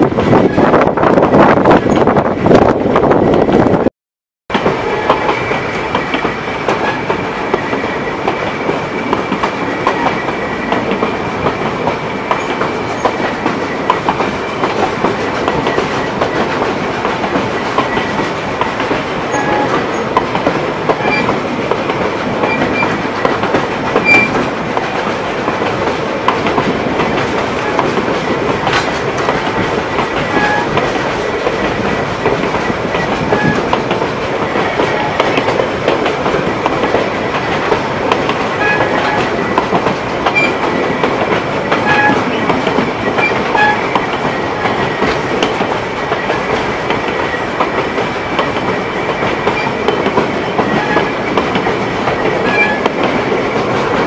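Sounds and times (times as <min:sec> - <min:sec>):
train wheel and track noise: 0:00.0 - 0:03.9, 0:04.5 - 0:54.0
wheels clacking over rail joints: 0:04.5 - 0:54.0.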